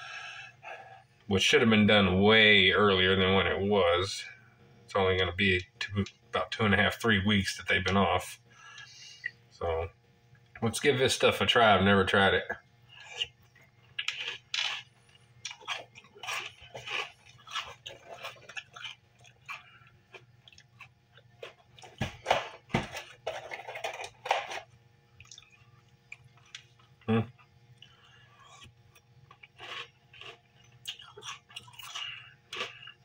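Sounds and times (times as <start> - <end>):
chewing crunchy cereal: 12.9 - 22.0, 25.1 - 33.0.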